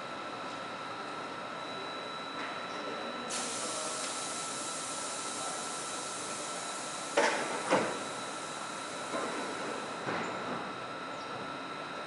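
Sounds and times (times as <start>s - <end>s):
train electrical tone: 1.0s - 12.0s
air hiss: 3.3s - 9.9s
train doors knocking shut: 7.1s - 8.1s.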